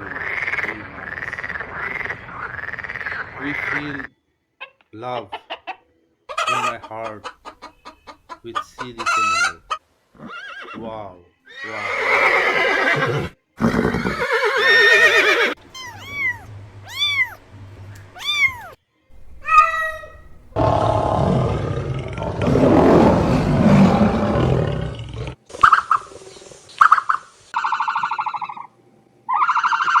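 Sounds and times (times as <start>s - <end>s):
long rough animal call: 11.9s - 17.4s, 18.2s - 25.4s
short arching animal calls: 14.2s - 20.7s.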